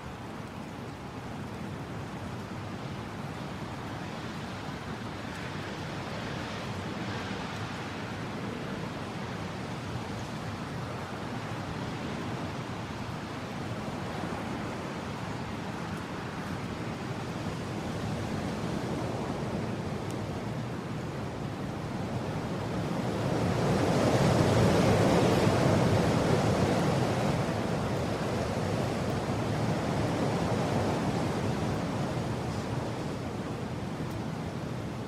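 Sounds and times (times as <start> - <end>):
strong wind blowing: 13.9 - 35.0.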